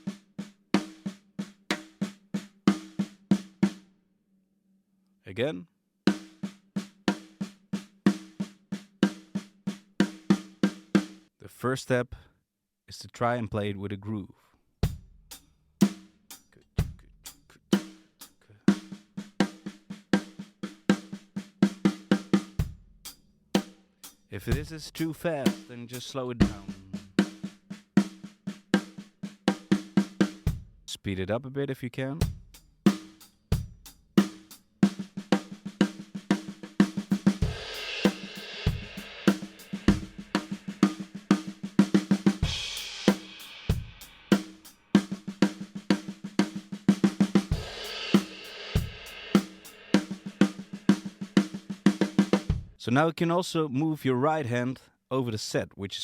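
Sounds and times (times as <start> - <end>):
drum kit groove: 0.0 - 3.8, 6.1 - 11.2, 14.8 - 30.8, 32.2 - 52.8
snare drum fill: 34.2 - 52.6.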